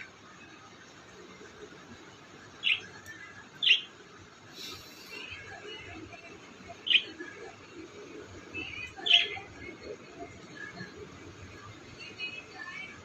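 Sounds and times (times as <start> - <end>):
parrot chirping: 2.6 - 3.0, 3.6 - 3.9, 6.8 - 7.2, 8.6 - 9.4.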